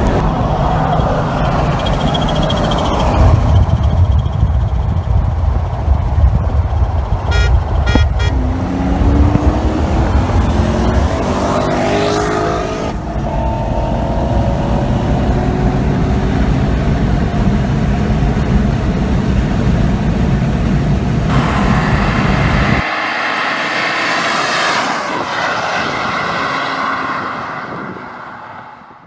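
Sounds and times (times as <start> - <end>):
wind and road rush: 0.0 - 29.0
car engine accelerating hard: 6.8 - 18.5, 21.3 - 29.0
car horn honks: 7.3 - 8.5.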